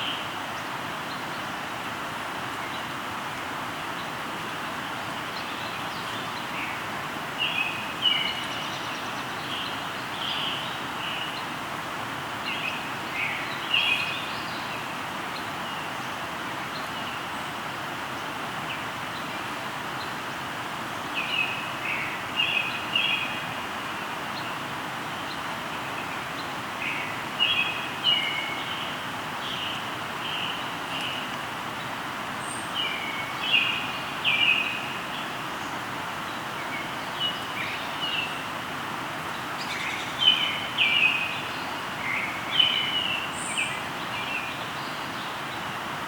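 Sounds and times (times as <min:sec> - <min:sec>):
river flowing: 0:00.0 - 0:46.0
birds chirping: 0:20.9 - 0:38.5.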